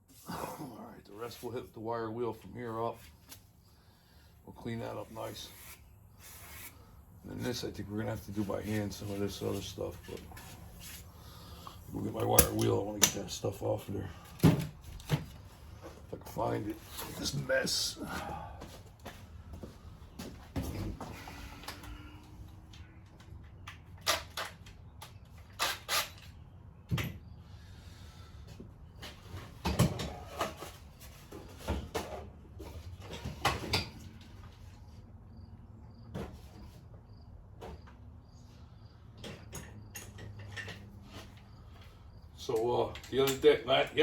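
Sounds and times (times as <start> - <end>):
tools clattering and knocking: 39.1 - 41.9.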